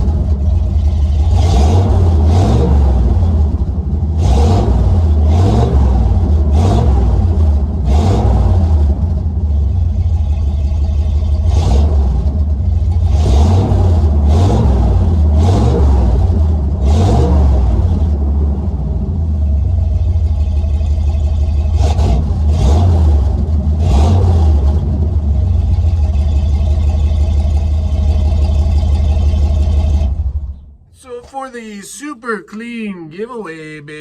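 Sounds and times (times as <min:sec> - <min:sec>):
truck engine revving: 0:00.0 - 0:09.2, 0:11.4 - 0:12.4, 0:13.0 - 0:18.9, 0:21.6 - 0:25.7.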